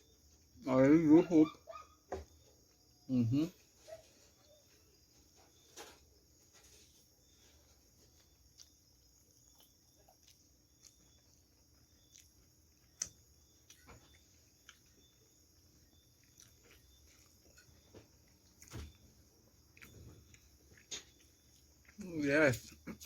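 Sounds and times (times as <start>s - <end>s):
crickets chirring: 0.0s - 23.0s
person chewing: 7.2s - 23.0s.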